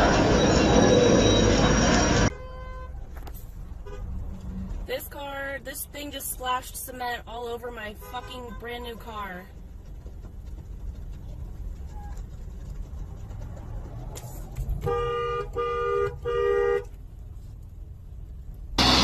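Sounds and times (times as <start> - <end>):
engine and traffic rumble: 0.0 - 19.0
vehicle horn honking: 2.3 - 3.0, 14.8 - 16.9.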